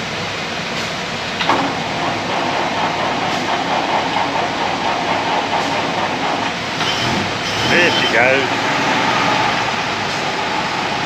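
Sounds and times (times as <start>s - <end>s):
old engine clattering: 0.7s - 8.8s.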